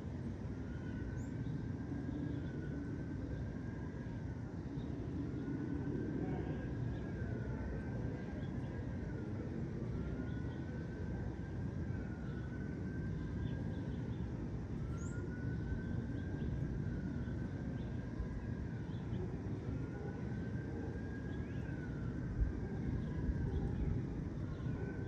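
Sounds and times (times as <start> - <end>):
distant city traffic rumble: 0.0 - 25.0
faint bird chirps: 14.9 - 18.0.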